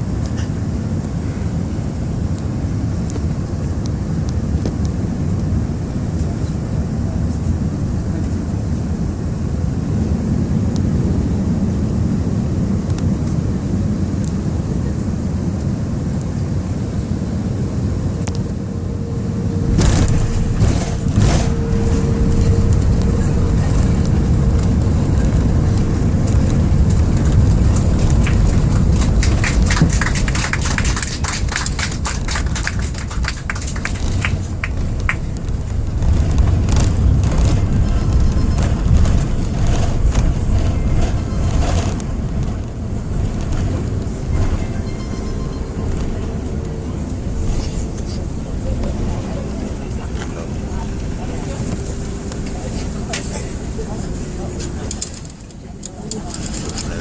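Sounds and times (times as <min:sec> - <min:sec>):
airplane cabin rumble: 0:00.0 - 0:57.0
clattering rattle in cabin: 0:19.6 - 0:57.0.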